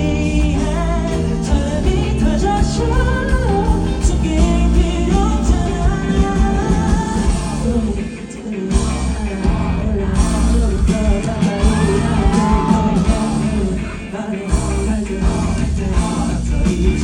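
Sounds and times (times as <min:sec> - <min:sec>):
live pop-rock band music: 0:00.0 - 0:17.0
person singing: 0:00.0 - 0:17.0
audience shouting: 0:11.3 - 0:14.2.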